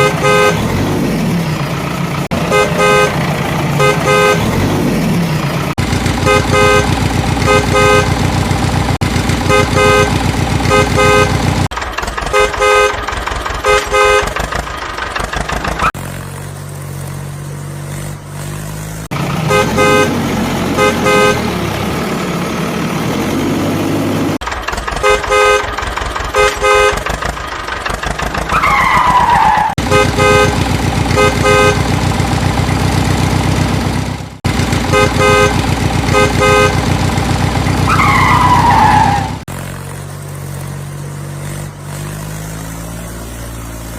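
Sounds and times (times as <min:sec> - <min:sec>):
vehicle horn beeping: 0:00.0 - 0:00.7, 0:02.3 - 0:04.6, 0:06.2 - 0:08.4, 0:09.4 - 0:11.6, 0:12.2 - 0:14.5, 0:19.5 - 0:21.5, 0:25.0 - 0:27.2, 0:29.8 - 0:32.1, 0:34.9 - 0:37.0
engine drone: 0:00.0 - 0:43.9.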